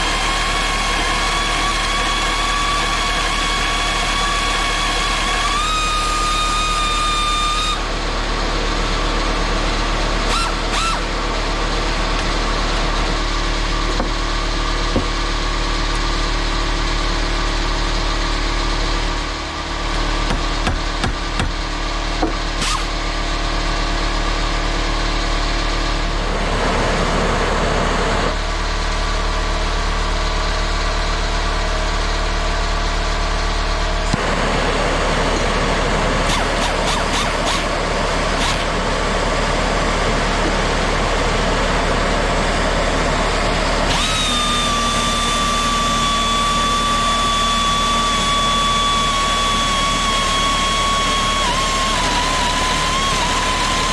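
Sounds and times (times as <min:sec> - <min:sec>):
air angle grinder running: 0:00.0 - 0:13.9, 0:22.4 - 0:23.1, 0:34.1 - 0:53.9.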